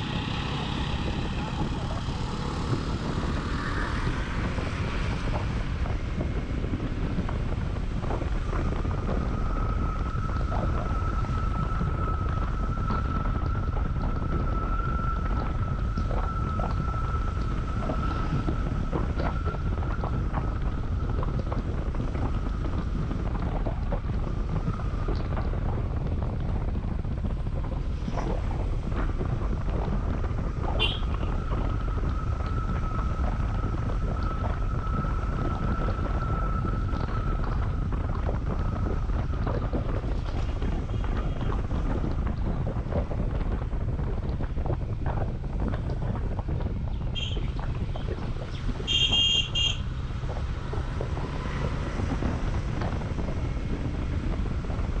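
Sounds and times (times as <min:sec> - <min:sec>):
motorcycle engine running: 0:00.0 - 0:04.8, 0:28.7 - 0:34.3
thin steady whine: 0:00.0 - 0:55.0
wind buffeting microphone: 0:00.0 - 0:55.0.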